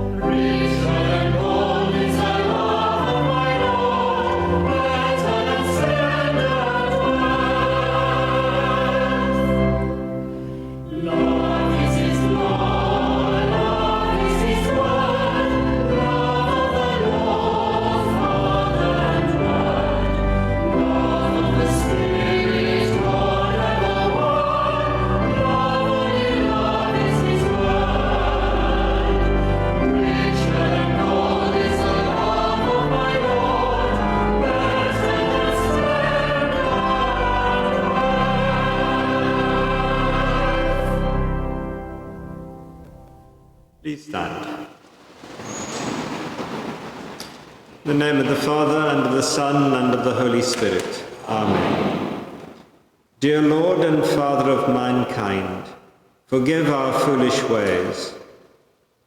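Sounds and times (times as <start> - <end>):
choir singing: 0.0 - 42.8, 47.9 - 52.6, 56.3 - 58.2.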